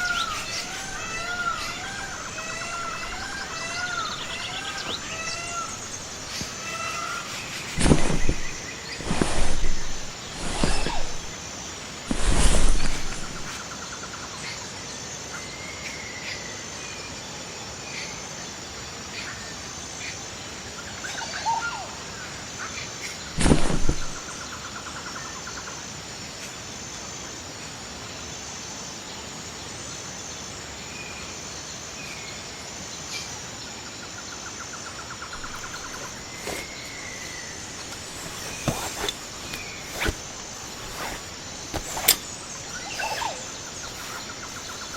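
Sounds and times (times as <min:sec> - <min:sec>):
bird chirps and trills: 0:00.0 - 0:11.4, 0:35.3 - 0:44.9
insects chirring: 0:00.0 - 0:13.6, 0:23.3 - 0:24.3, 0:34.8 - 0:44.9.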